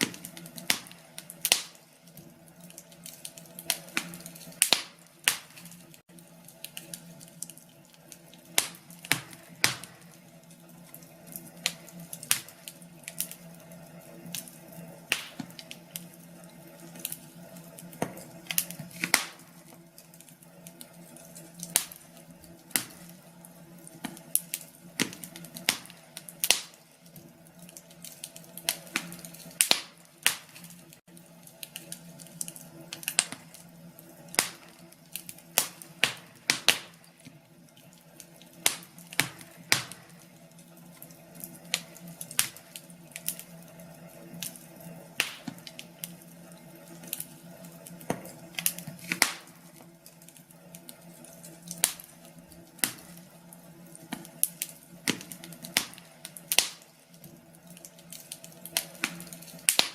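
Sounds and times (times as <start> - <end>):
sharp pops of fire: 0.0 - 10.2, 10.9 - 13.5, 14.3 - 16.1, 16.9 - 20.3, 20.9 - 23.2, 23.9 - 26.8, 27.6 - 31.0, 31.6 - 33.7, 34.3 - 37.3, 38.2 - 40.2, 41.4 - 43.6, 45.2 - 46.2, 47.0 - 49.8, 51.7 - 53.2, 54.1 - 56.9, 58.1 - 59.9
wood fire crackling: 0.0 - 59.9.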